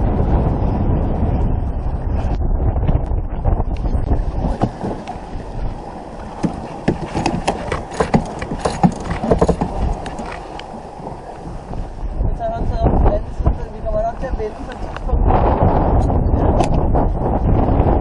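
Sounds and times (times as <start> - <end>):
wind rumble on microphone: 0.0 - 18.0
clicks and knocks on sailboat: 3.7 - 5.2, 6.2 - 11.7, 16.5 - 16.8.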